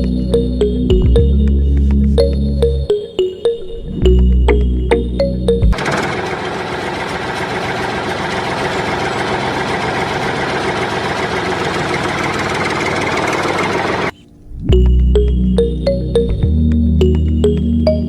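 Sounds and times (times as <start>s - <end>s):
small engine rattling: 5.8s - 14.1s.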